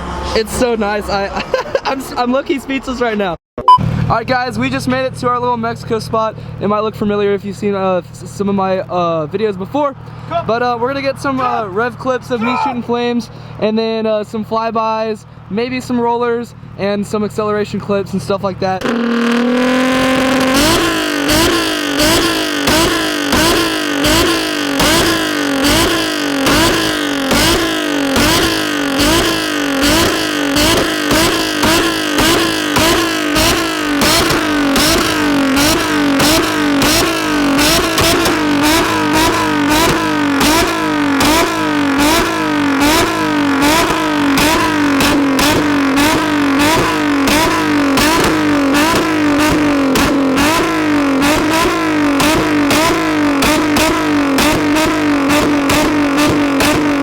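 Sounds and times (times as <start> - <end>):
car engine revving: 0.0 - 57.0
exhaust crackles and pops: 13.0 - 57.0.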